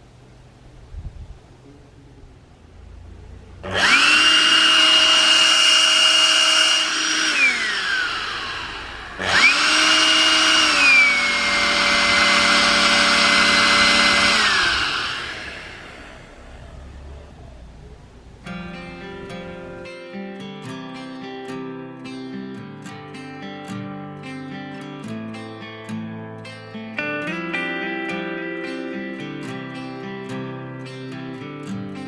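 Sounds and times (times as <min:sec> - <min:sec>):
vacuum cleaner motor whining: 0:03.5 - 0:20.0.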